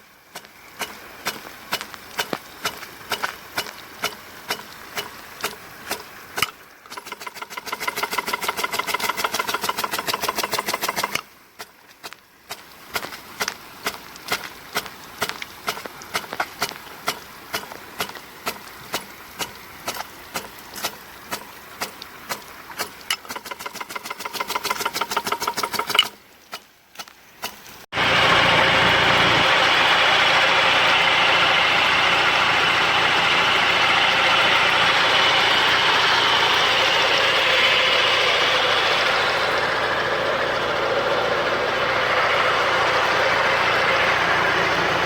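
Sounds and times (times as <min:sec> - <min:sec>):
water spray rushing: 0:00.0 - 0:45.0
irrigator ticking clicks: 0:00.3 - 0:27.7.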